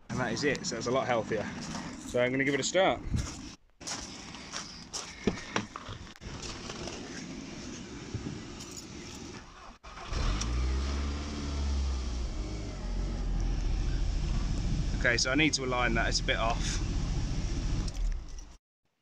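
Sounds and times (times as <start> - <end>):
car engine idling: 11.0 - 18.3.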